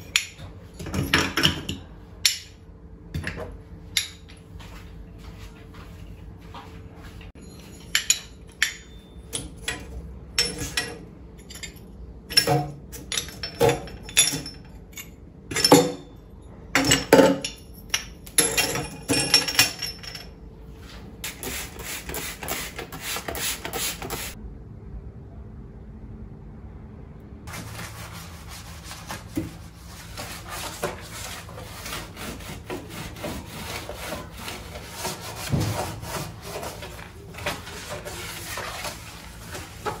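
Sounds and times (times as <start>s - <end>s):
dishes and utensils clinking: 7.4s - 16.1s.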